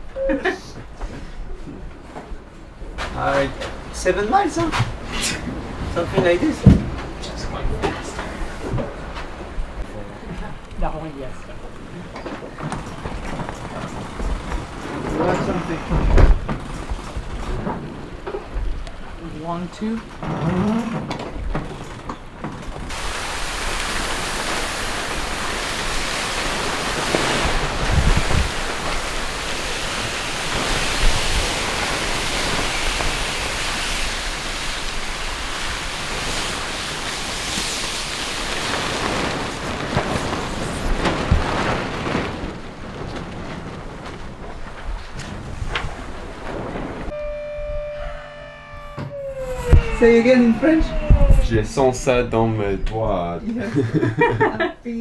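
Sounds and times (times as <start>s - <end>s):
water rushing past sailboat: 2.9s - 47.2s
wind rushing: 3.0s - 19.0s, 22.8s - 47.1s, 49.4s - 52.0s
low thumps: 3.0s - 19.4s, 49.0s - 52.0s.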